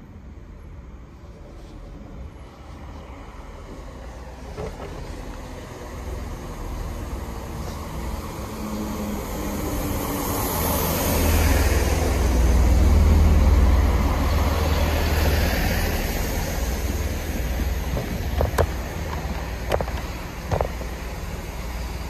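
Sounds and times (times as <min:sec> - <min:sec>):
diesel engine rumble: 0:11.4 - 0:22.0
wheels on rails: 0:16.9 - 0:22.0.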